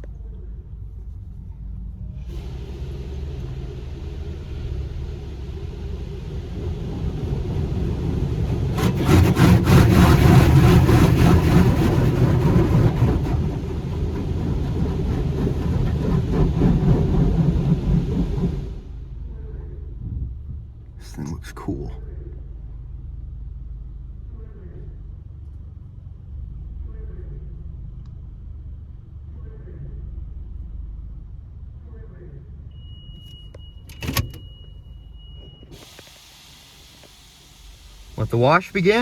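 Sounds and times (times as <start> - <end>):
car engine rumbling: 0.0 - 39.0
car wash rushing noise: 2.2 - 19.4, 35.6 - 39.0.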